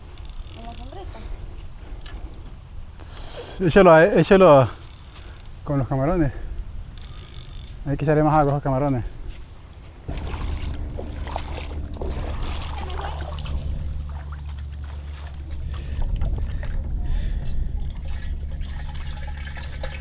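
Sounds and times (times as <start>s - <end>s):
steady low hum: 0.0s - 20.0s
water pouring into bucket: 10.1s - 20.0s.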